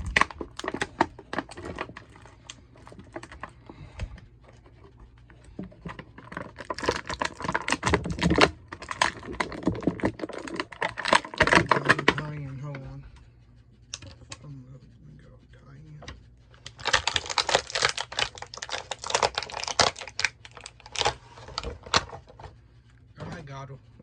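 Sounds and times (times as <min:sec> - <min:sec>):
plastic packaging clicks and crackles: 0:00.0 - 0:04.1, 0:05.3 - 0:12.4, 0:16.5 - 0:22.5.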